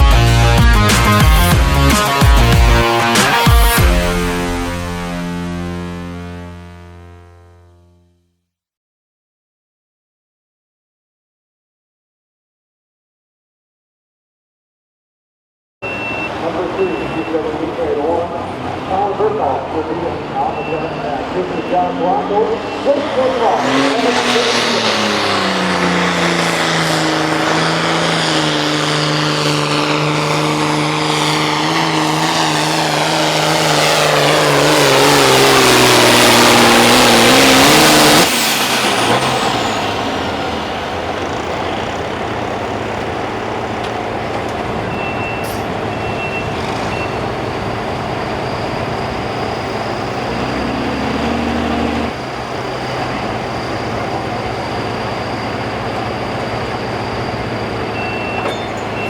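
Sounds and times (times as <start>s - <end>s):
tractor engine running flat out: 15.9s - 59.0s
low steady engine sound: 38.3s - 59.0s.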